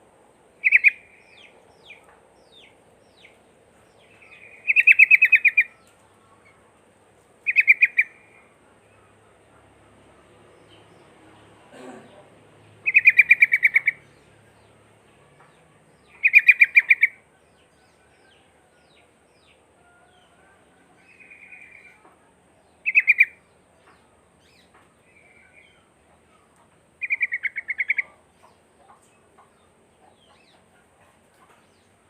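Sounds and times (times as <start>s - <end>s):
bird chattering calls: 0.6s - 2.0s, 4.2s - 5.7s, 7.5s - 8.4s, 12.8s - 14.1s, 16.1s - 17.2s, 22.8s - 23.4s, 27.0s - 28.2s.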